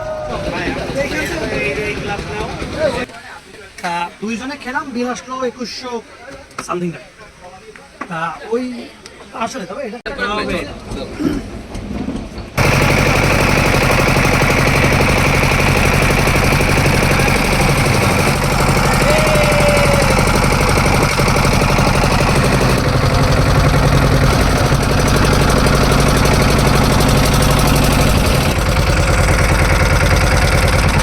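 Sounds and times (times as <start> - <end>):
engine running with knocking beat: 0.5 - 3.1, 11.6 - 31.0.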